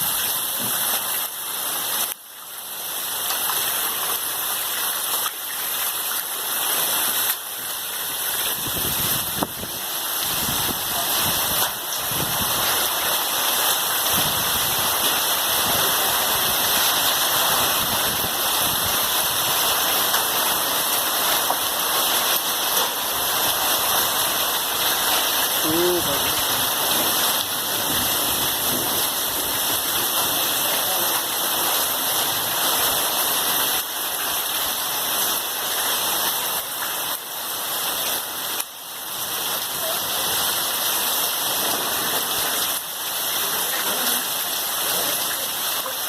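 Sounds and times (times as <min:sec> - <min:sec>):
heavy rain pouring: 0:00.0 - 0:46.0.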